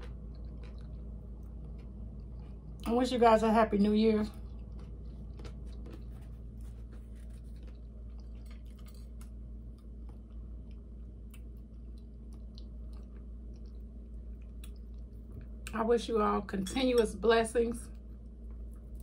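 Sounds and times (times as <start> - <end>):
person chewing: 0.0 - 2.9, 4.3 - 15.7
steady low hum: 0.0 - 19.0.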